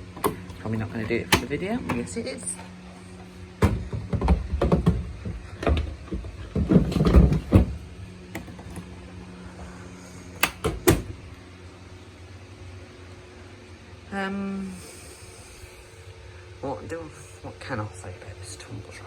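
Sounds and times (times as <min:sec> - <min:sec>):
sharp latch clicks: 0:01.3 - 0:02.0, 0:10.4 - 0:11.1
plastic knocks and clunks: 0:03.6 - 0:07.8.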